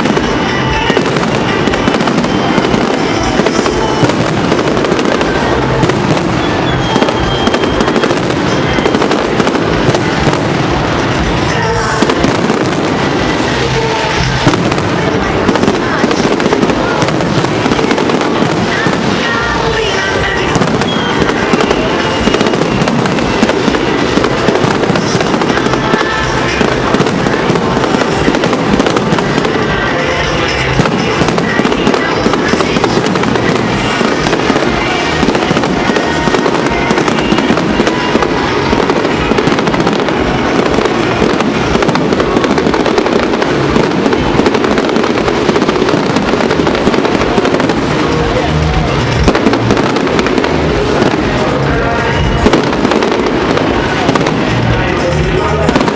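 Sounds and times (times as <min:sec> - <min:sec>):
fireworks bursting and crackling: 0:00.0 - 0:55.9
music playing: 0:00.0 - 0:55.9.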